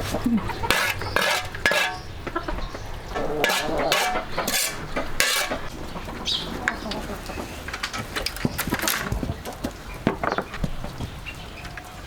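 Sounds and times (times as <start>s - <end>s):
utensils scraping and clinking cookware: 0.6s - 2.2s, 3.2s - 5.7s.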